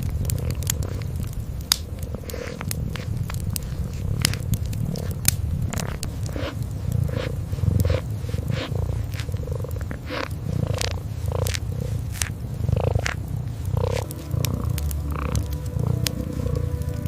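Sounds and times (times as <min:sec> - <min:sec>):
kitten purring: 0:00.0 - 0:17.0
wood fire crackling: 0:00.0 - 0:17.0.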